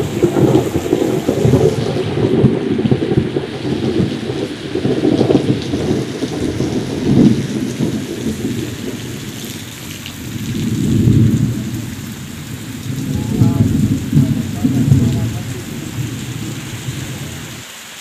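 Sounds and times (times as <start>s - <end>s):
heavy rain falling: 0.0s - 18.0s
low rumble: 10.5s - 17.5s.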